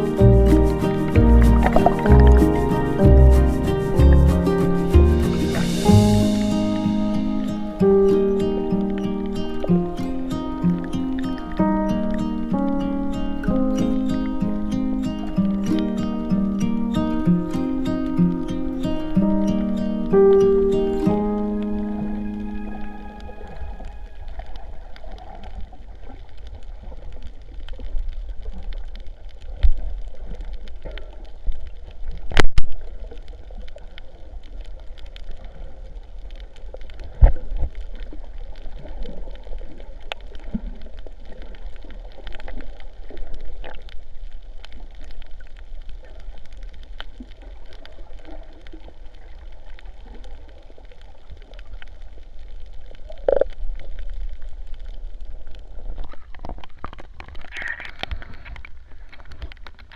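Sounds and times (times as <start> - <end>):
steady low rumble: 0.0 - 9.0
sea water gurgling and sloshing: 0.0 - 59.9.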